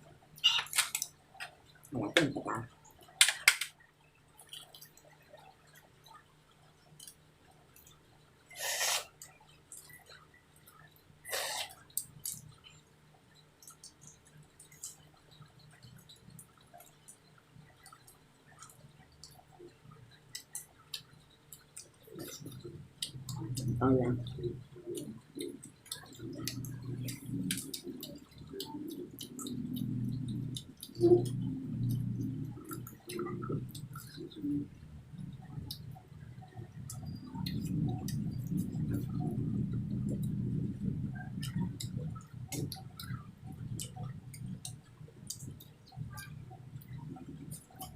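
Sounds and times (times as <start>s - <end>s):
low steady hum: 0.0s - 47.9s
noisy slurping suck: 8.5s - 9.2s, 11.3s - 11.8s
person chewing with wet smacks: 13.6s - 17.2s, 20.2s - 47.9s.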